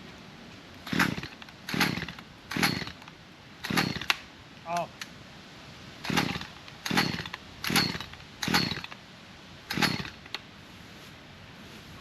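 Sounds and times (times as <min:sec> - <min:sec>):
engine turning over: 0:00.8 - 0:04.2, 0:06.0 - 0:09.0, 0:09.7 - 0:10.3
chainsaw starter cord pulled: 0:00.9 - 0:04.2, 0:06.0 - 0:09.0, 0:09.7 - 0:10.4.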